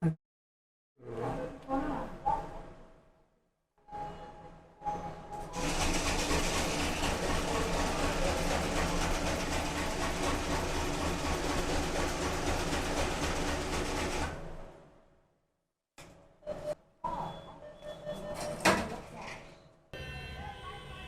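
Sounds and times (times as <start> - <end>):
mechanical running noise with low throb: 5.6 - 14.4.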